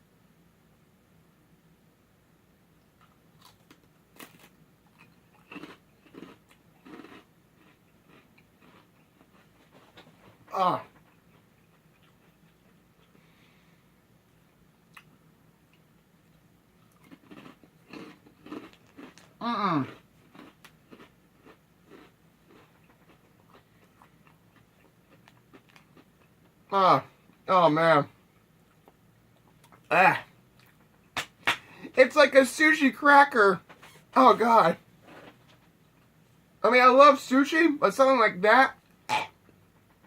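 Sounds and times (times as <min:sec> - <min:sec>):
chewing and crunching cracker: 0:03.0 - 0:13.4, 0:14.9 - 0:26.6.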